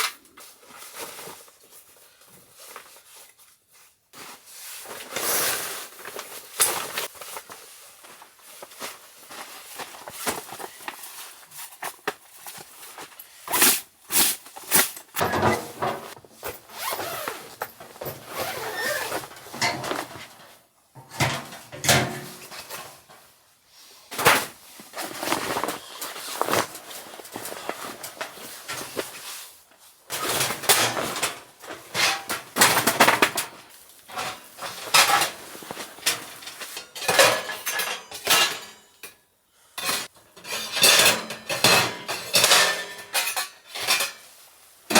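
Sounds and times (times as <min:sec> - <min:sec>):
objects being handled: 0:04.2 - 0:23.3, 0:24.1 - 0:29.5, 0:30.2 - 0:36.8.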